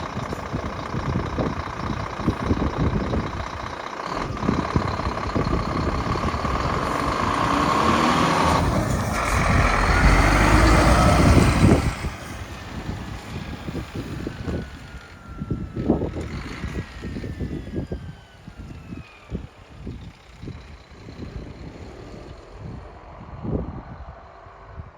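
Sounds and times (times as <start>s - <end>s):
diesel truck engine running: 0.0s - 24.9s.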